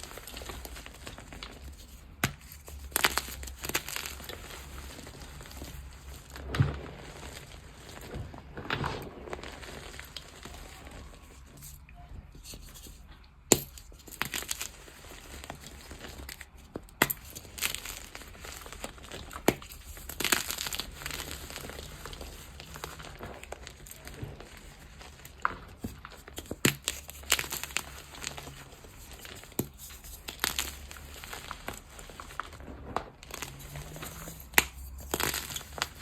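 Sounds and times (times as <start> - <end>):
chalk being crushed: 12.5 - 32.6, 33.2 - 36.0.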